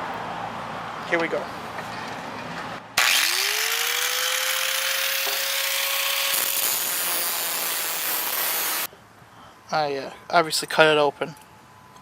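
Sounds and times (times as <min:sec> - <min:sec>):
motor whine: 0:03.0 - 0:08.9
power tool cutting steel: 0:03.0 - 0:08.9.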